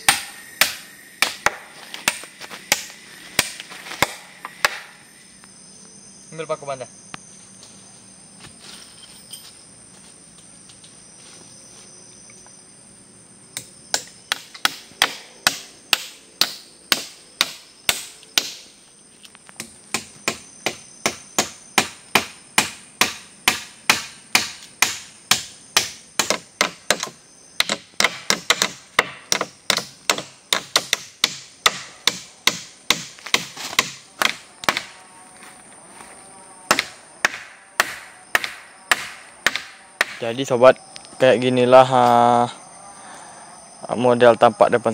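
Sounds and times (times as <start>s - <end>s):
insects humming: 0.0s - 44.9s
hammer striking nails into wood: 0.1s - 4.9s, 13.9s - 18.6s, 19.6s - 34.9s, 36.7s - 40.2s.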